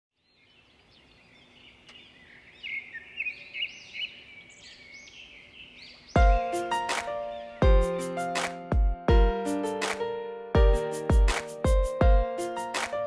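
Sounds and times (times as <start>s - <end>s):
small birds chirping: 0.2s - 7.6s
music with loud struck chord: 6.2s - 10.0s, 10.6s - 13.0s.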